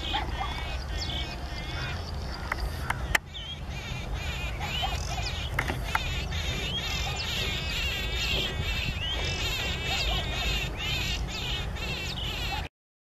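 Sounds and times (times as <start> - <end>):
small birds chirping: 0.0 - 12.7.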